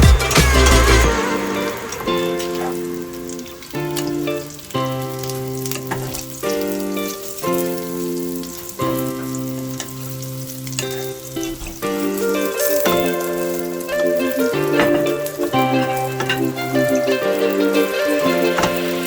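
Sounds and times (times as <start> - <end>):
background music: 0.0 - 19.0
tofu sizzling in oil: 1.1 - 19.0.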